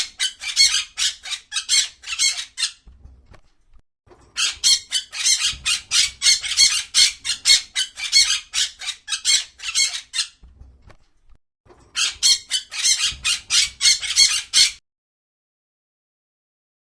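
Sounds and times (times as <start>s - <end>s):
parrot squawking: 0.0s - 2.8s, 4.4s - 10.4s, 12.0s - 14.8s.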